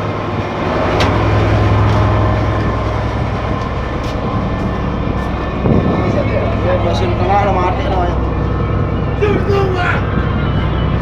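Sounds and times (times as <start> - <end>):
ship machinery drone: 0.0 - 11.0.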